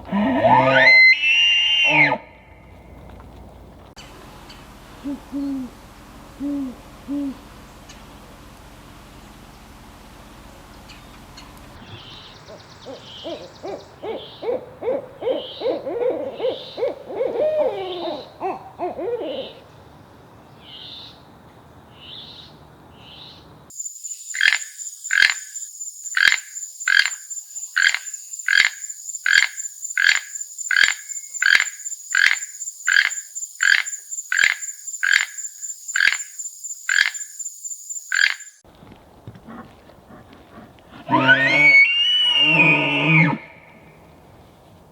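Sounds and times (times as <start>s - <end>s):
wavering animal calls: 0.0s - 2.3s, 6.4s - 7.5s, 11.9s - 19.6s, 24.3s - 37.4s, 38.0s - 38.6s, 41.0s - 43.8s
owl hooting: 5.0s - 5.8s, 6.4s - 7.5s, 11.9s - 19.6s, 23.8s - 38.6s
frogs croaking: 11.8s - 19.6s, 23.1s - 38.6s
high insect trill: 23.7s - 38.6s.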